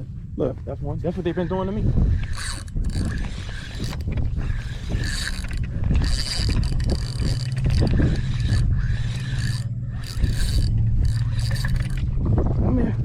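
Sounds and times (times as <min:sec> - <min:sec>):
low hum: 0:00.0 - 0:13.0
fishing reel gears whirring: 0:01.0 - 0:12.5.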